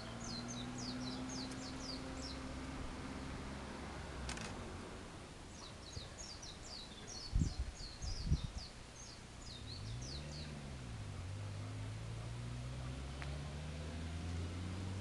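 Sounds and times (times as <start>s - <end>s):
small bird chirping: 0.0s - 2.6s, 5.5s - 10.7s
outdoor background noise: 0.0s - 15.0s
sharp click: 4.3s - 4.6s.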